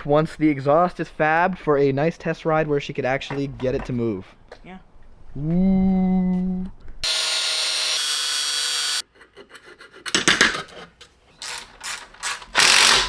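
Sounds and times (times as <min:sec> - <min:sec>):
hand filing strokes: 0:09.1 - 0:10.9.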